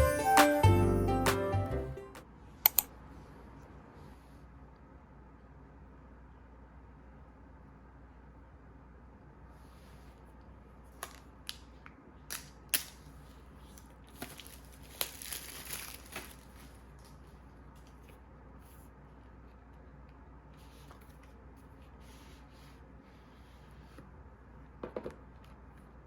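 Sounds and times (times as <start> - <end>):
packaging rustling: 13.8 - 18.0.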